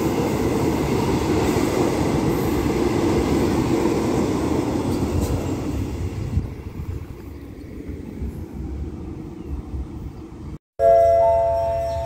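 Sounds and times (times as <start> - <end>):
train rumbling: 0.0 - 12.0
station announcement chime: 10.8 - 12.0.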